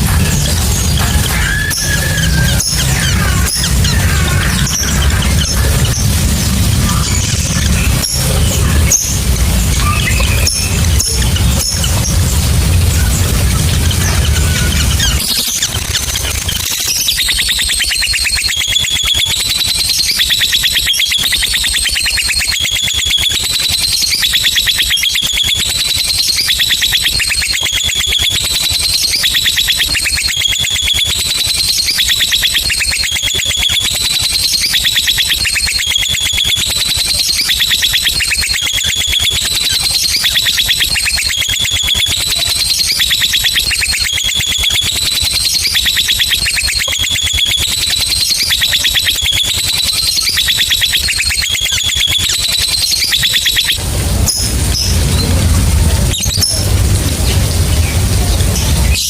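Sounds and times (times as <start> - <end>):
lovebird chattering trill: 0.0 - 55.4.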